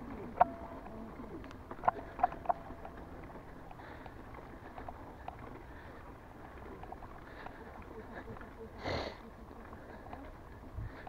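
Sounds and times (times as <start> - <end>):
bicycle squeaks: 0.0 - 6.8
bicycles running: 0.0 - 11.0.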